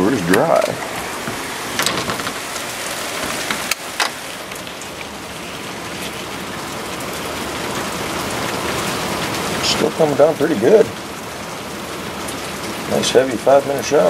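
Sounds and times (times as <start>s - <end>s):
heavy rain hitting the ground: 0.0s - 14.0s
sharp clicks and knocks: 0.3s - 4.7s.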